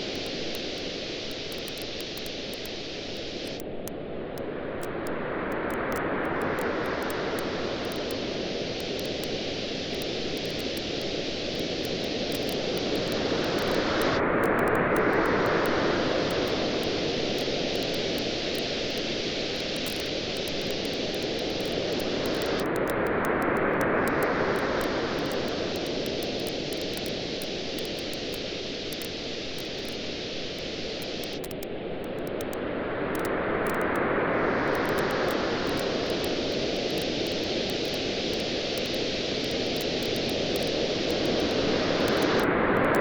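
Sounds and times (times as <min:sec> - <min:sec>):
surf waves on a beach: 0:05.3 - 0:27.8, 0:32.6 - 0:43.0
campfire crackling: 0:05.7 - 0:23.0, 0:23.8 - 0:32.6, 0:34.7 - 0:42.5.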